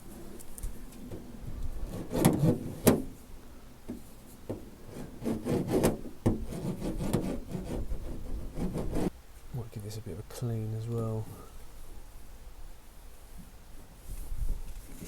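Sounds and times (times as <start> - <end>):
hand rubbing on sheet metal: 1.0 - 3.3, 3.9 - 9.1.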